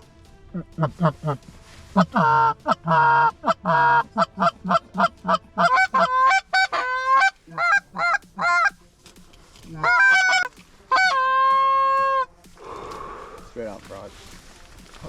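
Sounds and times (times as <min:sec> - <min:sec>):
goose honking and clucking: 0:00.0 - 0:08.8, 0:09.7 - 0:12.3.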